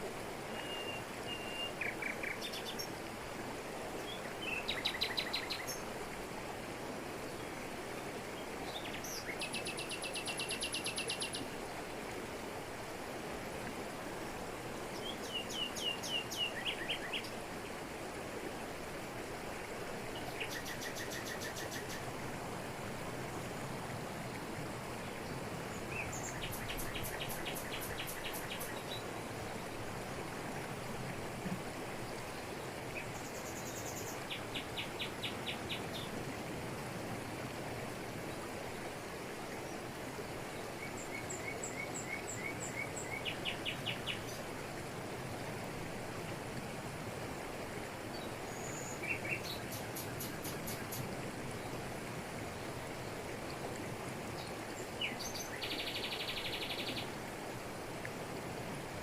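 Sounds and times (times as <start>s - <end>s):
waterfall pouring over rocks: 0.0s - 59.0s.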